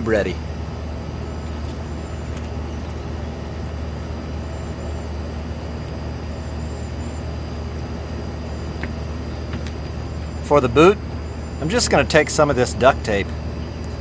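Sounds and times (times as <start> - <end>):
low drone: 0.0 - 14.0.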